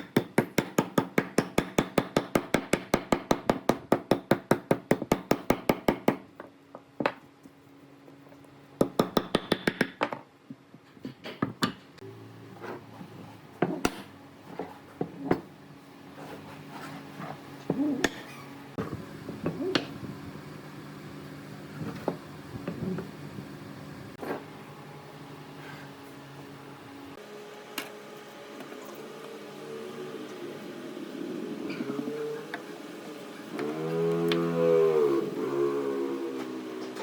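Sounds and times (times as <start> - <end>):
hammering on wood: 0.0 - 6.2.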